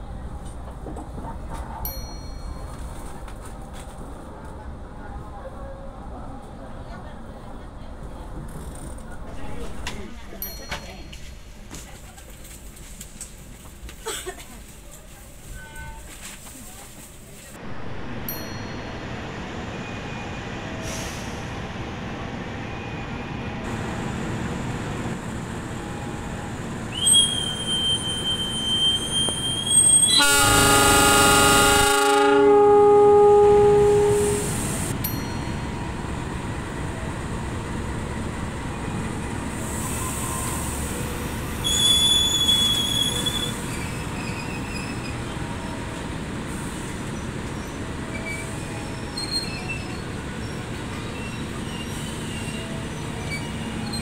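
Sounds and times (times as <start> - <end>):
passenger train rumbling: 0.0 - 54.0
high wheel squeal: 26.9 - 30.5, 41.6 - 45.2, 47.5 - 54.0
locomotive horn: 27.3 - 34.9.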